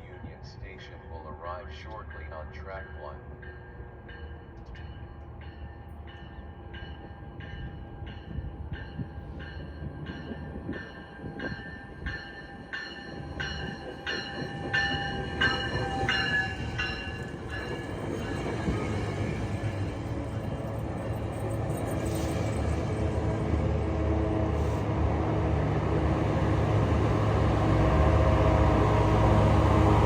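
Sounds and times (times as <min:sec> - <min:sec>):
train rumble: 0:00.0 - 0:30.0
train bell ringing: 0:02.6 - 0:23.2.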